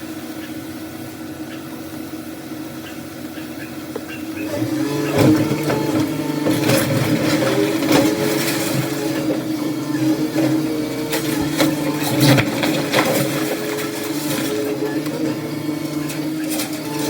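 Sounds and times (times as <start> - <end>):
machinery engine hum: 0.0 - 17.0
debris knocking and crunching: 4.6 - 17.0.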